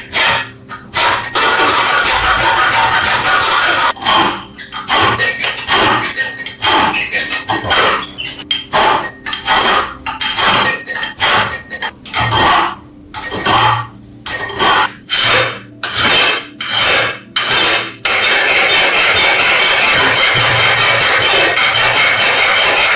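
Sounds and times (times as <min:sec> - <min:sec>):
hand scraping across metal: 0:12.2 - 0:22.9.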